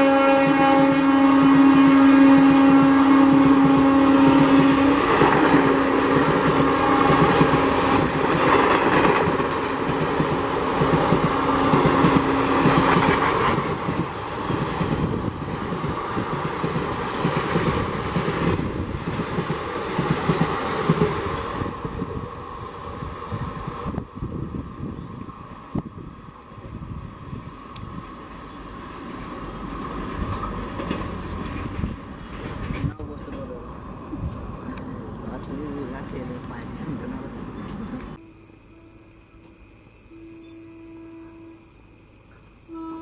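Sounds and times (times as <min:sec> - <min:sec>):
locomotive horn blast: 0:00.0 - 0:08.4, 0:10.4 - 0:13.6, 0:38.1 - 0:43.0
train coaches rushing past: 0:00.0 - 0:25.7, 0:27.5 - 0:38.2.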